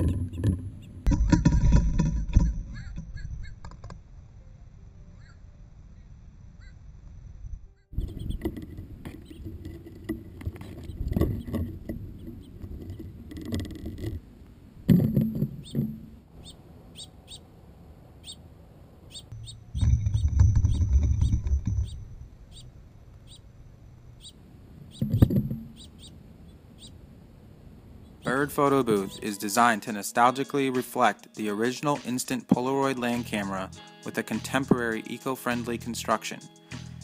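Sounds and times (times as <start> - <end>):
faint bird chirps: 5.0 - 6.9, 7.7 - 8.4, 15.6 - 17.5, 18.2 - 18.4, 19.1 - 27.0
bird wings fluttering: 19.7 - 22.3.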